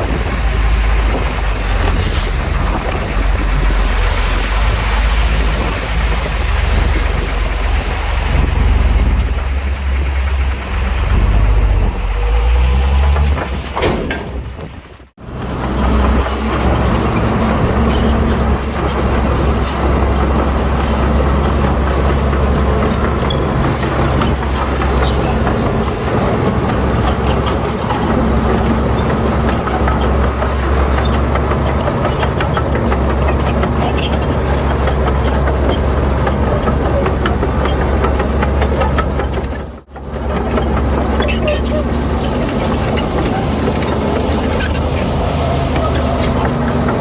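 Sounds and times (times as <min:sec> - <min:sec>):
heavy diesel machinery running: 0:00.0 - 0:47.0
clicks and clanks: 0:15.7 - 0:47.0.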